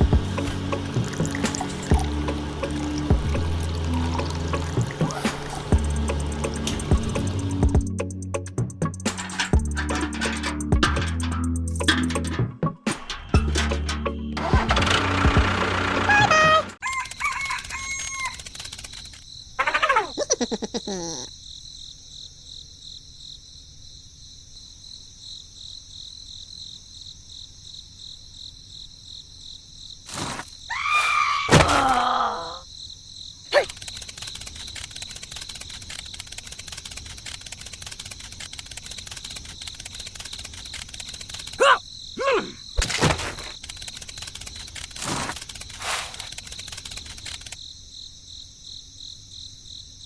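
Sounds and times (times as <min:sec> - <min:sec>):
insects chirping: 0:00.0 - 0:12.5, 0:16.8 - 0:50.0
rooster crowing: 0:16.1 - 0:18.6.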